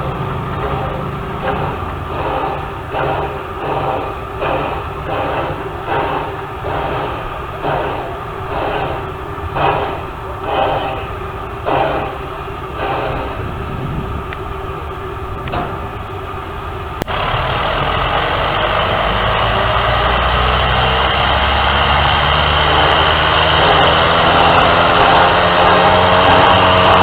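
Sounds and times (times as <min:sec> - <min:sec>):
vehicle engine rumble: 0:00.0 - 0:27.0.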